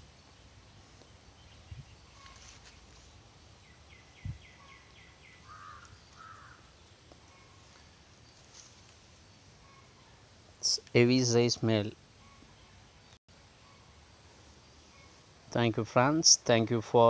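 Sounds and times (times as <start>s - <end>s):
crow-like caws: 5.4s - 6.6s.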